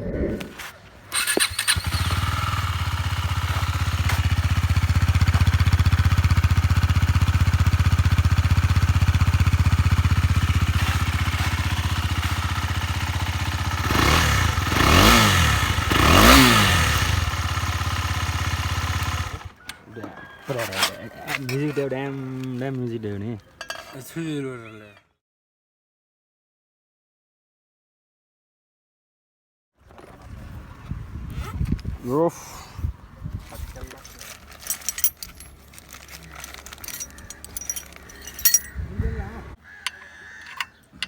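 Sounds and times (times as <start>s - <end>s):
motorcycle engine revving: 1.1s - 19.6s, 34.4s - 39.6s
motorcycle engine idling loud: 1.2s - 19.6s.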